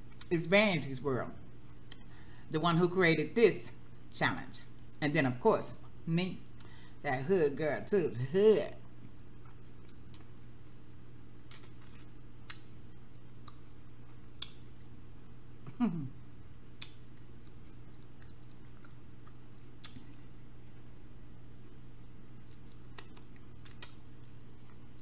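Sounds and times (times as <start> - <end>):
person humming mmm: 15.7 - 16.2.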